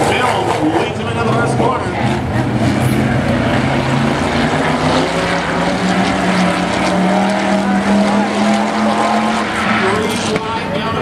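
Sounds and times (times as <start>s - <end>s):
racing truck engines: 0.0s - 11.0s.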